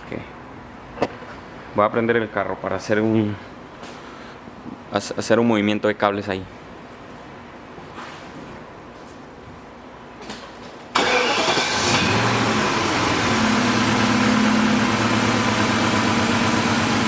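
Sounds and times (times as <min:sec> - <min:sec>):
car engine starting and idling: 0:10.9 - 0:17.0.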